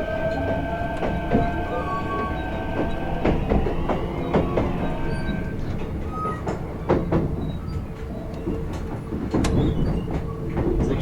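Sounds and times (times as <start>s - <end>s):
electric train rumbling: 0.0s - 11.0s
wheels clacking over rail joints: 0.0s - 11.0s.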